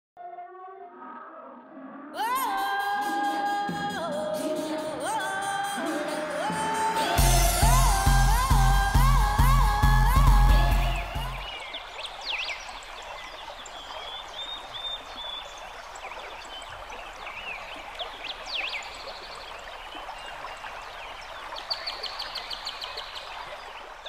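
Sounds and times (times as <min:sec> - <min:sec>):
birds chirping: 0:04.8 - 0:24.0.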